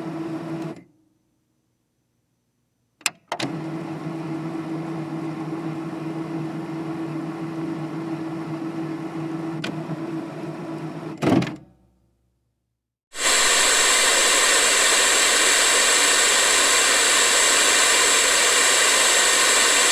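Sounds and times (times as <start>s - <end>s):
electric motor humming: 13.2s - 19.9s.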